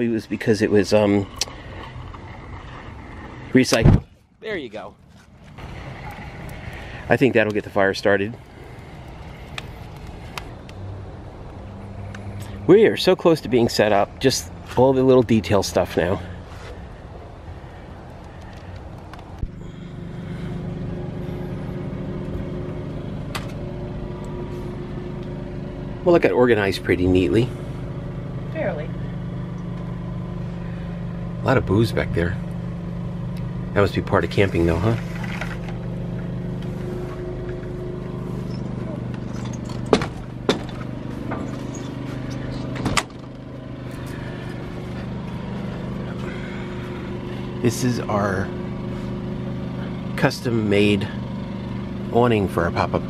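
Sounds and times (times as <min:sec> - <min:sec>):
engine idling: 0:00.0 - 0:53.0
machine running steadily: 0:19.4 - 0:53.0.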